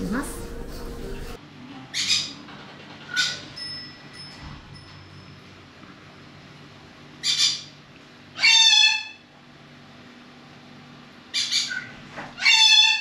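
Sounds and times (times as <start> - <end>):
bird squawking: 8.4 - 9.2, 11.3 - 13.0.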